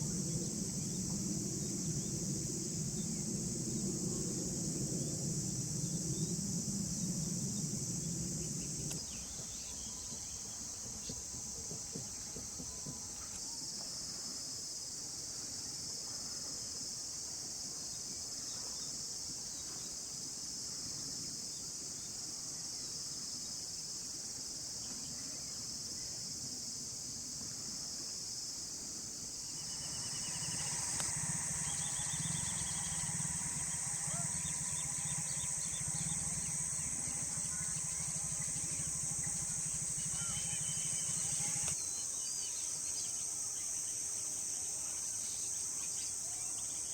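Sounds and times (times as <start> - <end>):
insects chorus: 0.0 - 46.9
small birds chirping: 29.5 - 43.0.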